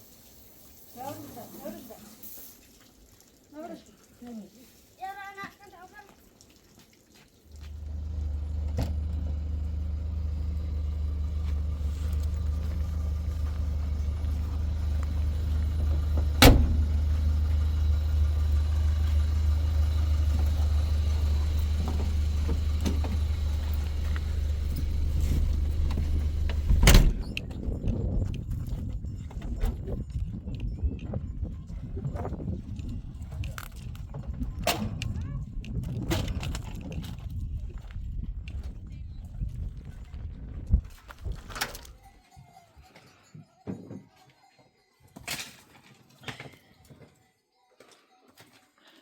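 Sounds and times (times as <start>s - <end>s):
steady low rumble: 7.6s - 29.2s.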